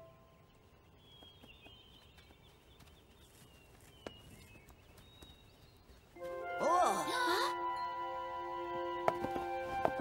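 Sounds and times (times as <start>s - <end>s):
faint birds chirping: 0.0s - 7.4s.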